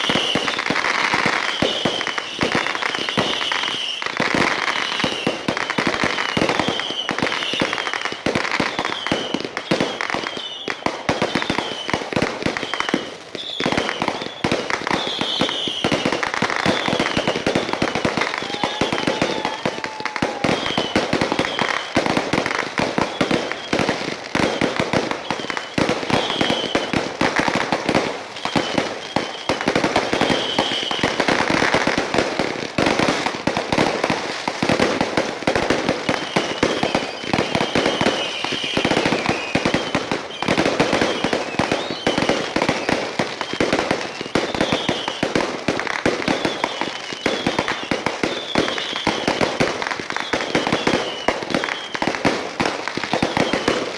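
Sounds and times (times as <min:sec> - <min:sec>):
fireworks popping and crackling: 0:00.0 - 0:53.9
high warbling firework whistles: 0:06.0 - 0:08.0, 0:08.7 - 0:22.0, 0:23.0 - 0:26.9, 0:28.3 - 0:31.2, 0:36.0 - 0:45.2.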